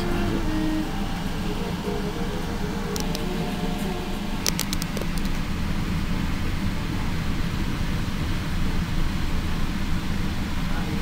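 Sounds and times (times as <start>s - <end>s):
train carriage rumble: 0.0s - 11.0s
sharp clicks: 2.9s - 3.4s, 4.4s - 5.5s.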